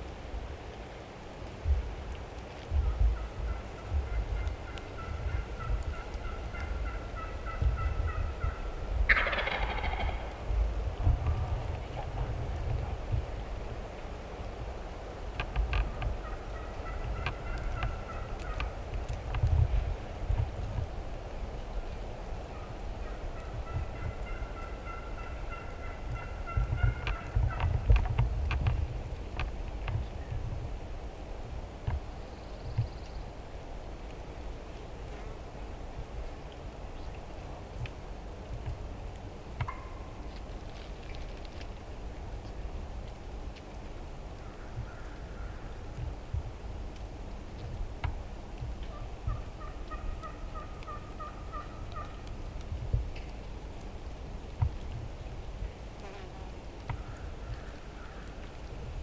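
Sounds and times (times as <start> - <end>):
wind rumble on microphone: 0.0 - 59.0
turkey yelps: 3.2 - 10.3, 48.9 - 52.1
turkey gobbling loudly: 3.2 - 10.4, 23.0 - 27.6, 49.3 - 52.1.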